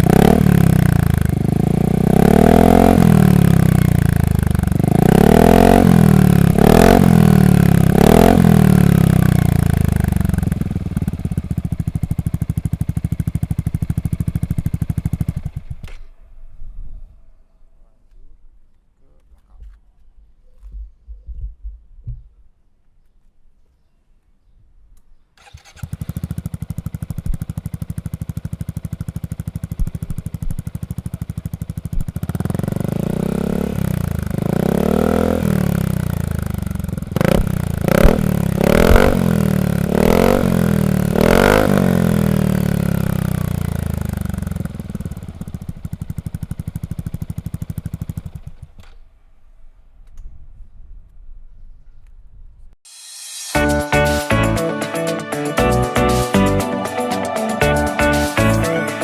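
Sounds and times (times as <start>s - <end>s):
scooter engine idling and revving: 0.0s - 16.2s, 25.4s - 49.0s.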